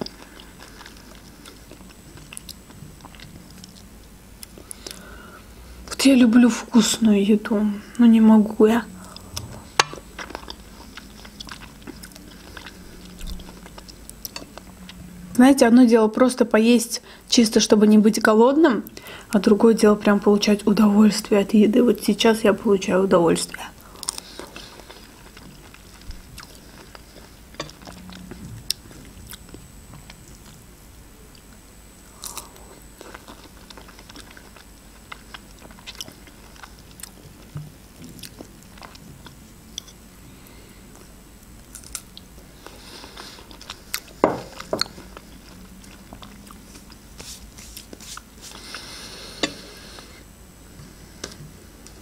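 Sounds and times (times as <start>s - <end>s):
chewing strawberries: 0.0s - 5.2s, 9.0s - 15.0s, 23.8s - 30.6s, 32.2s - 40.0s, 40.9s - 50.0s.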